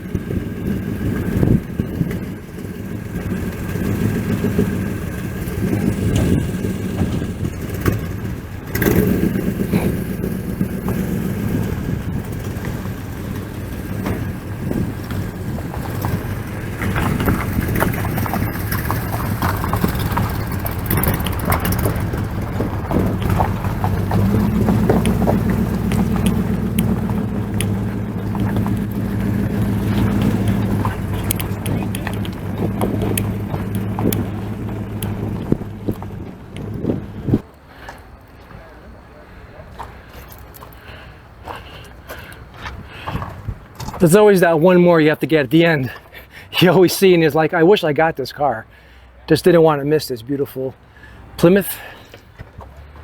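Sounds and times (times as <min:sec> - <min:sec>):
car engine pulling away: 0:00.0 - 0:44.5, 0:50.8 - 0:53.0.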